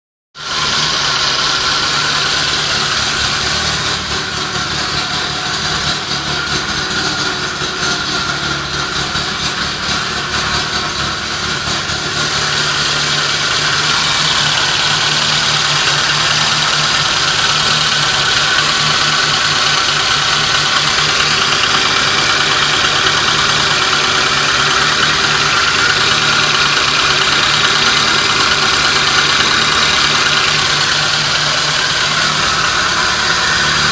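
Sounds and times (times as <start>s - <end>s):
car engine idling: 0.4s - 33.9s.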